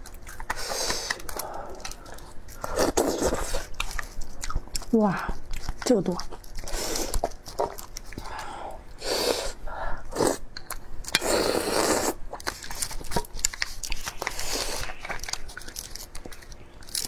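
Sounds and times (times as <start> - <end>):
person chewing crunchy food: 0.0 - 17.0.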